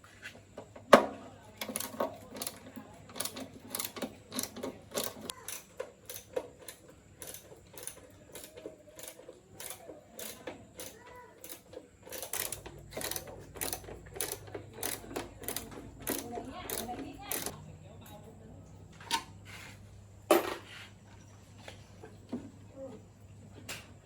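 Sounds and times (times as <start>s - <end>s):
metallic clicking of tools: 1.6s - 17.5s.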